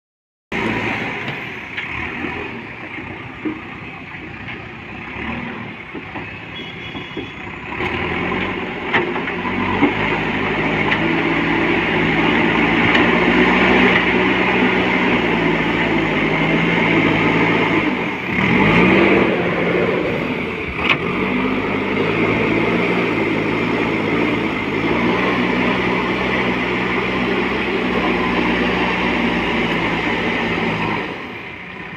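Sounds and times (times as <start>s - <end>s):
diesel engine revving under load: 0.5s - 31.9s.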